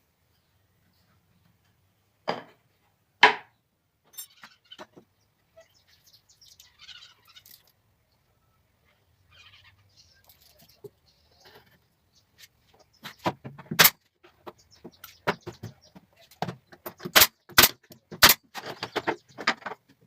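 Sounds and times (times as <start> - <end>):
wooden clicks and scraping: 10.2 - 20.0
sharp wooden impacts: 13.0 - 20.0.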